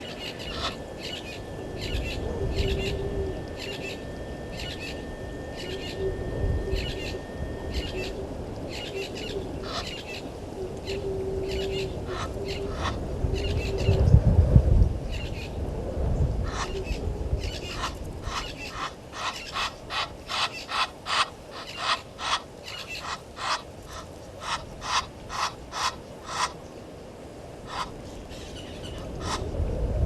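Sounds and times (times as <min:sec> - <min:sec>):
low rumble: 0:00.0 - 0:09.7
bird chirping: 0:00.0 - 0:14.0, 0:16.7 - 0:23.6
lower droning call: 0:00.0 - 0:14.0.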